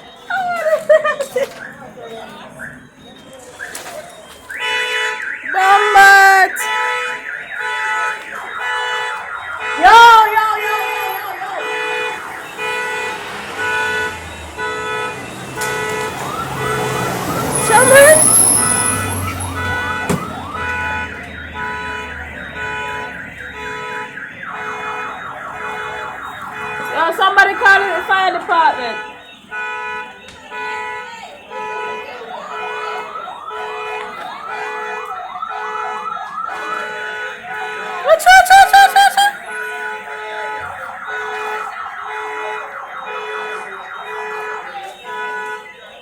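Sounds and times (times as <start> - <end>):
car alarm whooping: 0.0 - 46.0.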